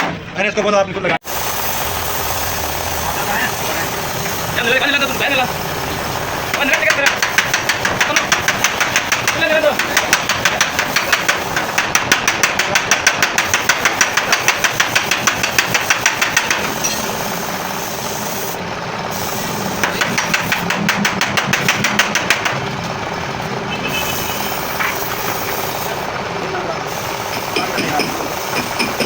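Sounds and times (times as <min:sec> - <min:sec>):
engine running: 0:01.2 - 0:29.0
fast metallic knocking: 0:06.5 - 0:17.0, 0:19.8 - 0:23.1, 0:27.2 - 0:29.0.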